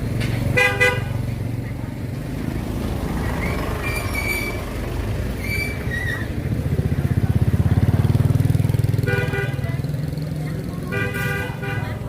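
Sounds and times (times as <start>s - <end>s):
traffic engine rumble: 0.0s - 12.0s
short high squeaks: 3.4s - 4.6s, 5.4s - 6.3s.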